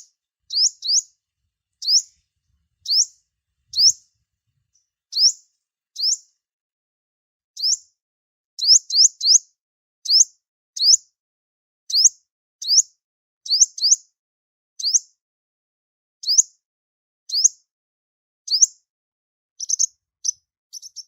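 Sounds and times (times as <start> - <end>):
sunbird chirping: 0.0 - 1.2, 1.8 - 2.2, 2.8 - 4.1, 4.7 - 5.4, 19.6 - 21.0.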